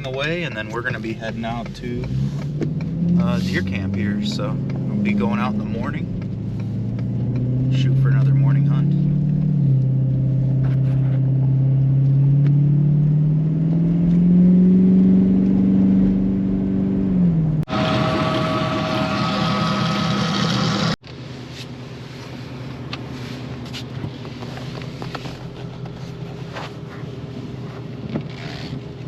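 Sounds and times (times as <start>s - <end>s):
vehicle engine accelerating: 0.0s - 21.0s
rough road noise: 0.0s - 29.0s.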